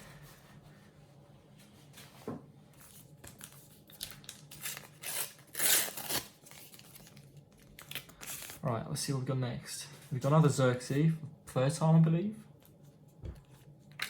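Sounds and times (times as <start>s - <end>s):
wrapper crinkling: 2.9s - 8.7s
foil packet tearing: 3.3s - 8.7s.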